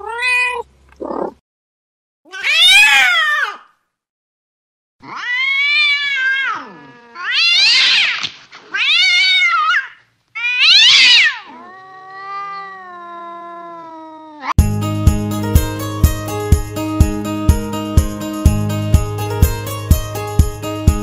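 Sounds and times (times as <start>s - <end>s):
cat yowling: 0.0s - 1.4s, 2.3s - 3.8s, 5.0s - 14.5s.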